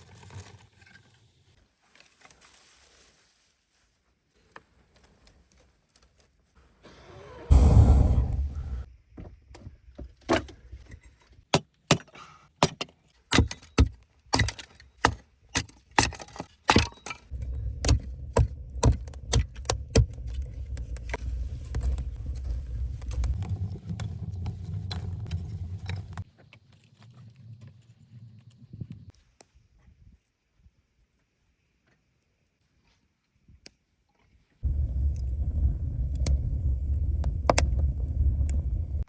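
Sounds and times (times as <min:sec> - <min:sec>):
low rumbling noise: 0:07.4 - 0:08.9, 0:17.3 - 0:26.2, 0:34.6 - 0:39.0
sharp knocks and cracks: 0:11.5 - 0:22.2.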